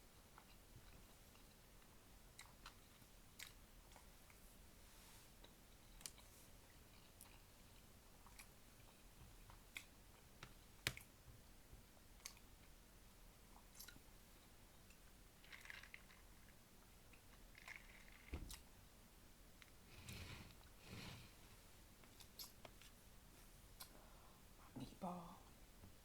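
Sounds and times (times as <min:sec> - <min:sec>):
person chewing food: 0:00.1 - 0:04.4, 0:05.4 - 0:11.1, 0:11.9 - 0:12.8.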